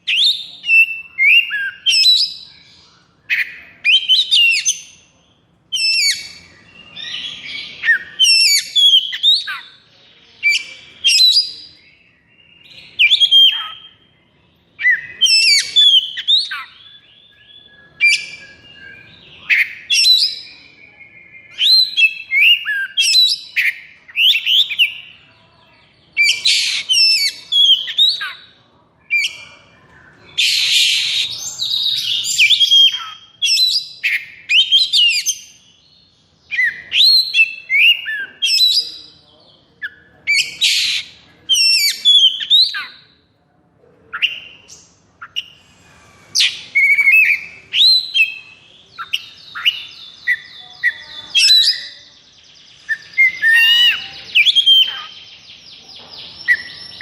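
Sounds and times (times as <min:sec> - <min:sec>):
songbird singing whistles and chatter: 0:00.0 - 0:43.4, 0:44.0 - 0:57.0.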